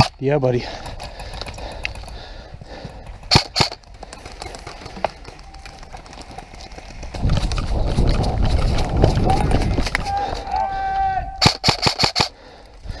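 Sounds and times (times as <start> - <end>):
airsoft gun shots: 3.3 - 3.8, 11.4 - 12.3.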